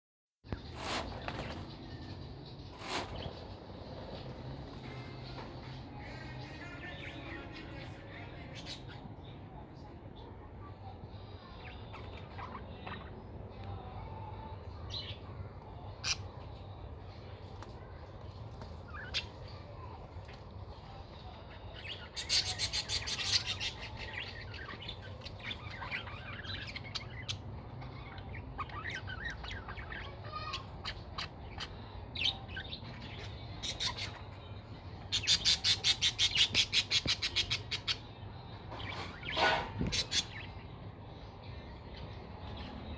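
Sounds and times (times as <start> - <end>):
parrots chirping: 21.3 - 34.4, 35.0 - 38.1, 38.8 - 40.7.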